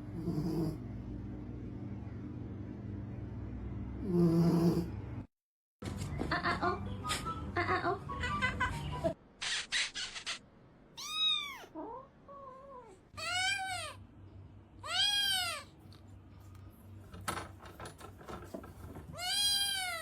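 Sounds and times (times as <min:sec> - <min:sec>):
cat meowing: 0:11.0 - 0:14.0, 0:14.8 - 0:15.7, 0:19.2 - 0:20.0.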